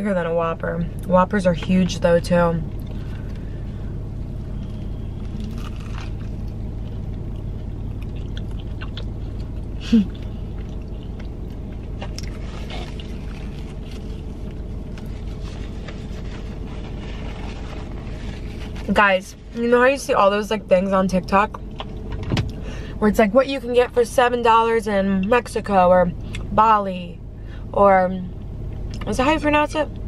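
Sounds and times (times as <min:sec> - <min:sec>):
low hum: 0:00.0 - 0:30.0
crunchy chewing: 0:04.6 - 0:16.3.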